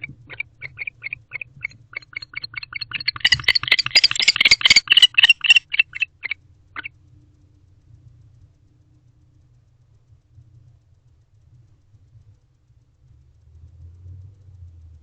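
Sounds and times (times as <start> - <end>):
owl chirping calls: 0.0 - 6.9.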